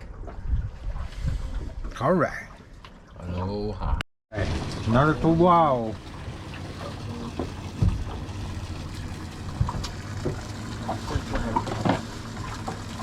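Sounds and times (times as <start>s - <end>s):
low boat engine rumble: 2.6s - 13.0s
dull knocks against hull: 7.3s - 8.5s, 9.4s - 12.9s.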